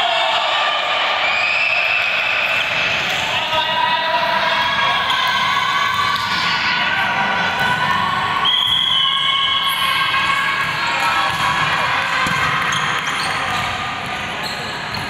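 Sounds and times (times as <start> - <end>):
many voices shouting: 0.0 - 13.0
ball bouncing: 10.6 - 14.2.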